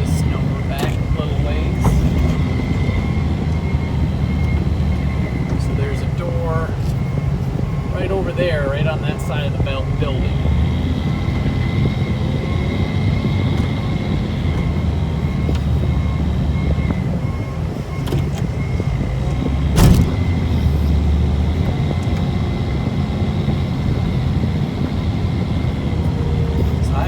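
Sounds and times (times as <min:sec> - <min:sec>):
snow plow engine running: 0:00.0 - 0:27.0
thin steady whine: 0:00.0 - 0:27.0
loud clunk: 0:19.8 - 0:20.4.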